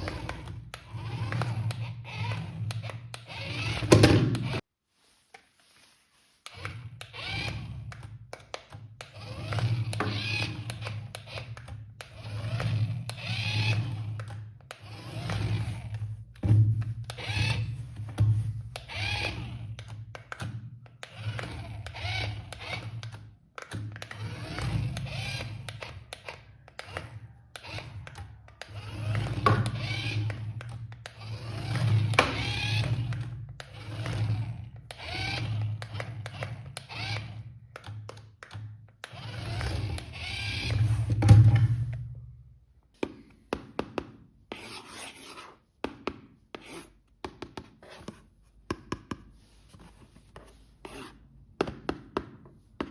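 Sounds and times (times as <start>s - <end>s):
toy vehicle motors whirring: 0.0s - 4.6s, 6.4s - 16.4s, 17.0s - 41.1s.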